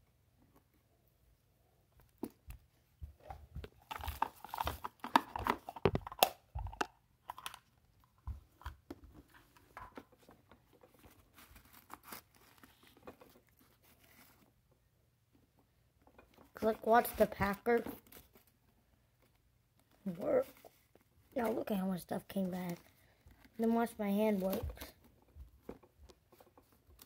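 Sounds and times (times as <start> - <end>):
paper bits crinkling: 10.9 - 14.4.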